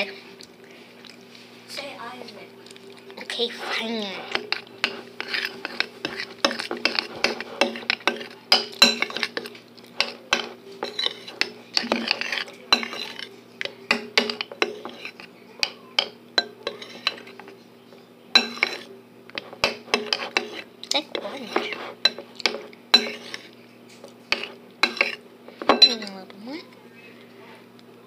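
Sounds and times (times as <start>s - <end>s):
steady low hum: 0.0s - 28.0s
utensil stirring slime in bowl: 3.1s - 17.6s, 18.4s - 26.2s
utensil clinking against bowl: 3.3s - 17.6s, 18.4s - 26.2s.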